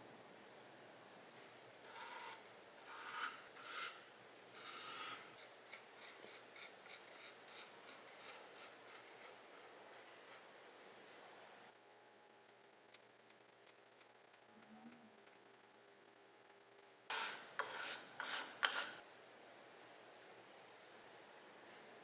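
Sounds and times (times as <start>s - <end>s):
faint scraping strokes: 17.1s - 19.0s.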